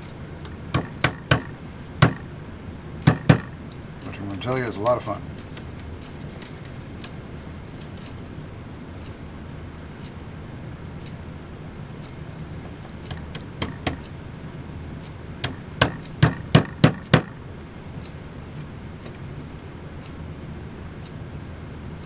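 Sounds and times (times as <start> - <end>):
hammer tapping nails into wicker: 0.7 - 2.3, 3.0 - 3.6, 13.1 - 14.0, 15.4 - 17.4.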